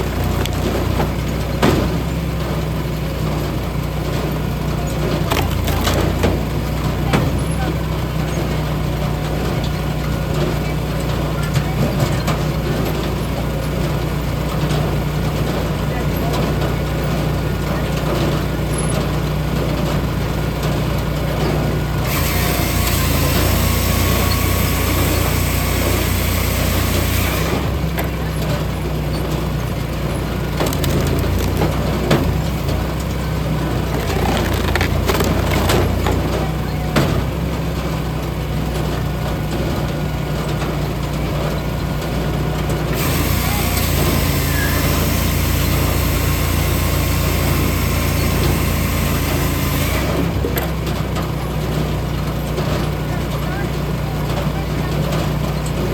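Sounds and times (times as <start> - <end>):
wood cracking and knocking: 0.0 - 2.3, 5.0 - 7.4, 30.2 - 37.4
engine drone: 0.0 - 55.9.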